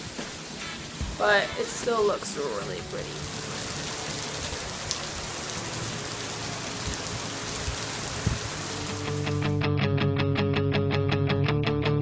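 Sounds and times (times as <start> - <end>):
heavy rain pouring: 0.0 - 9.5
guitar music with steady beat: 6.7 - 12.0.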